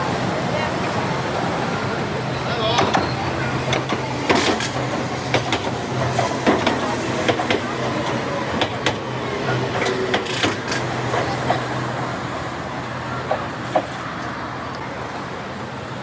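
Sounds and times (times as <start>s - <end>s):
train running with low hum: 0.0s - 16.0s
train wheel clicks: 2.7s - 14.3s.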